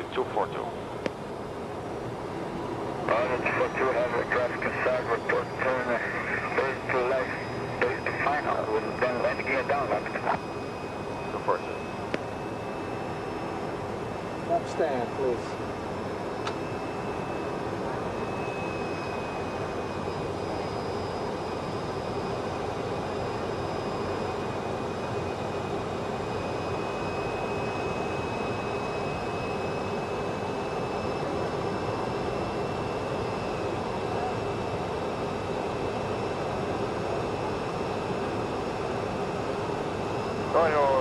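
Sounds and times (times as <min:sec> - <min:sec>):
airflow and engine noise: 0:00.0 - 0:41.0
thin high whine: 0:03.1 - 0:13.7.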